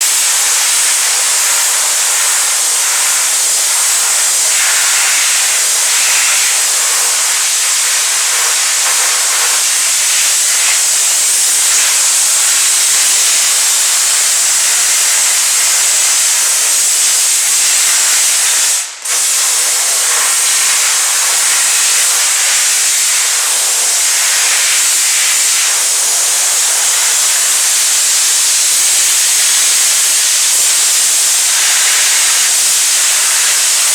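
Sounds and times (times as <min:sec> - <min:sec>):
steam cleaner hissing: 0:00.0 - 0:33.9.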